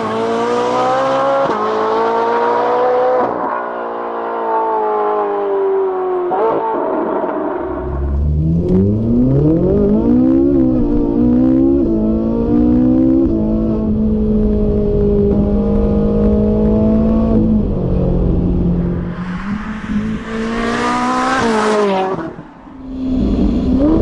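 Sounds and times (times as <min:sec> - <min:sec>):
vehicle engine revving: 0:06.3 - 0:24.0.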